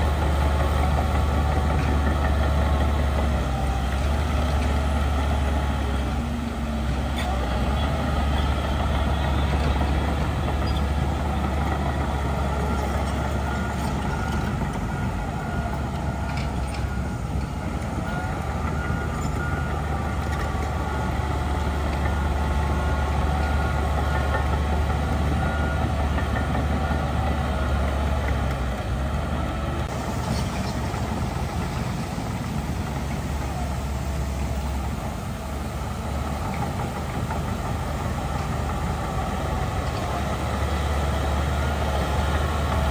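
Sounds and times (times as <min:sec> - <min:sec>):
diesel machinery engine drone: 0:00.0 - 0:42.9.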